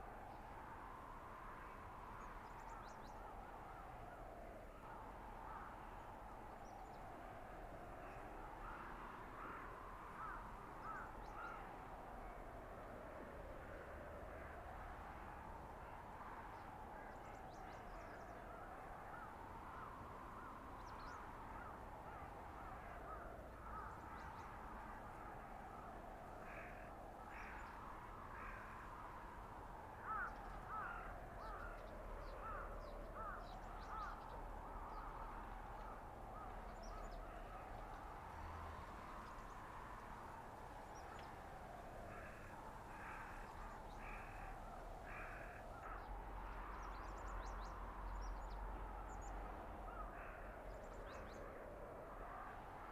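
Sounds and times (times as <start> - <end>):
bird cawing: 4.8 - 6.7, 7.9 - 11.9, 14.3 - 40.1, 42.0 - 51.5.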